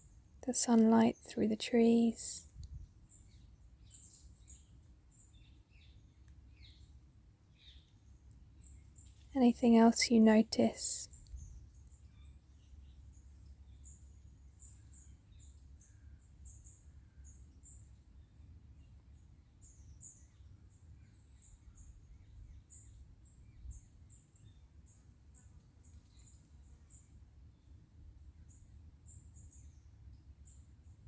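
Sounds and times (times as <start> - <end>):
birds chirping: 7.6 - 17.9.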